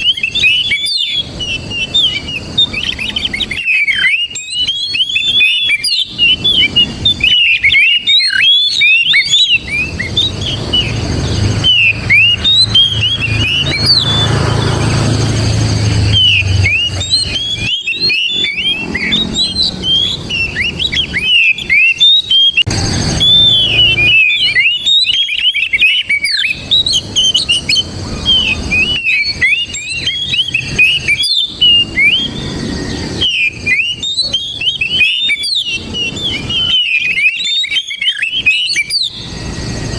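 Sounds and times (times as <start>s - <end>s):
bird singing whistled notes: 0.0s - 39.9s
low rumble: 9.8s - 17.6s.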